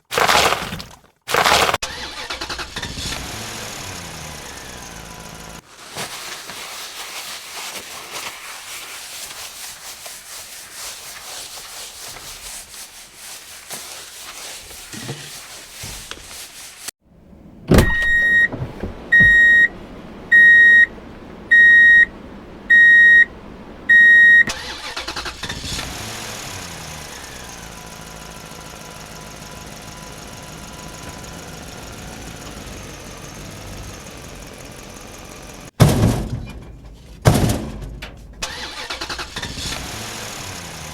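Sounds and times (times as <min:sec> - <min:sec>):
thump: 0:17.7 - 0:19.6, 0:35.8 - 0:38.4
loud electronic beeps: 0:19.2 - 0:19.7, 0:20.3 - 0:20.9, 0:21.5 - 0:22.1, 0:22.7 - 0:23.3, 0:23.9 - 0:24.5
motor rattling: 0:24.8 - 0:35.8.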